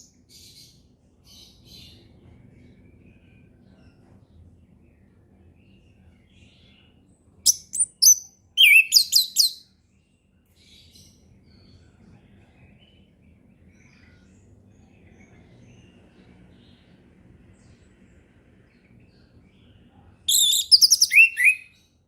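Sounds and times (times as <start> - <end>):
low background noise: 0.0 - 22.0
bird singing whistled notes: 7.4 - 9.6, 20.3 - 21.8
distant bird calls: 7.5 - 9.6, 20.3 - 21.8.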